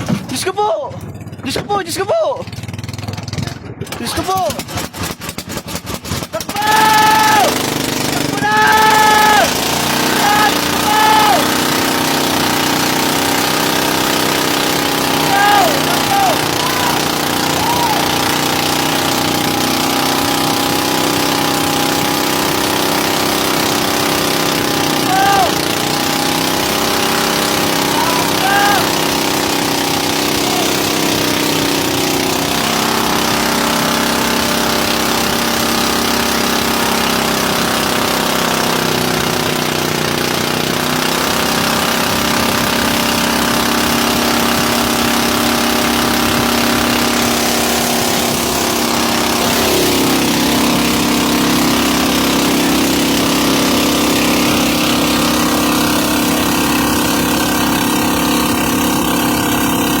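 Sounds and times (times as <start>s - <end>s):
boat engine running: 0.0s - 60.0s
steady rushing hiss: 45.8s - 51.4s.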